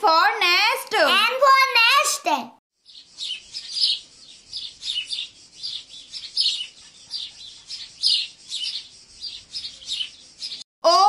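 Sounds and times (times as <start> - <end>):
small birds chirping: 2.8 - 10.7.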